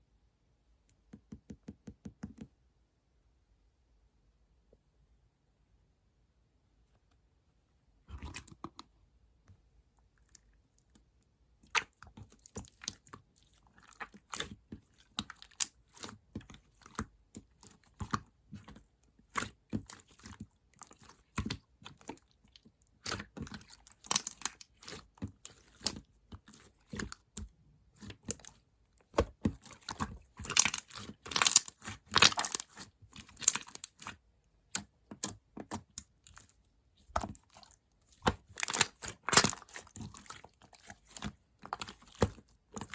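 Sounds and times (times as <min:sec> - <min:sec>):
slime squeezed by hand: 0:29.5 - 0:34.2.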